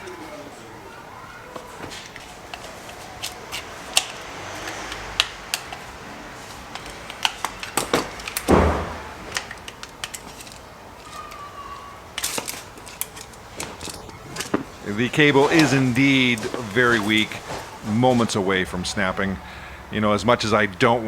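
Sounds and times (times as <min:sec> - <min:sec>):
scraping rustle: 0:01.0 - 0:19.0
light metallic clicks and rattles: 0:09.3 - 0:11.4.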